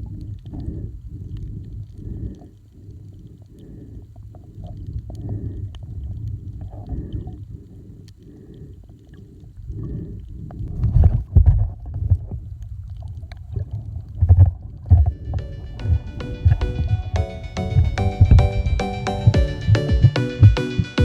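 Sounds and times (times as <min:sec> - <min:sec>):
low thumps: 0:14.9 - 0:21.0.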